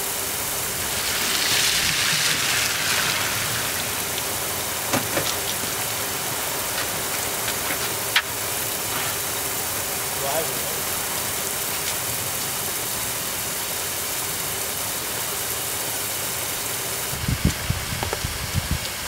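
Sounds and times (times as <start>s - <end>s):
heavy rain on grass and pavement: 0.0s - 19.0s.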